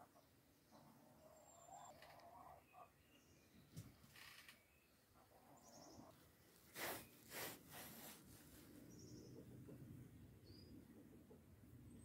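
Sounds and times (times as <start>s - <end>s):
small bird chirps and trills: 0.0s - 6.2s, 8.8s - 9.6s, 10.4s - 10.9s
quiet rural ambience: 0.0s - 12.0s
rustling swishes: 6.6s - 8.8s.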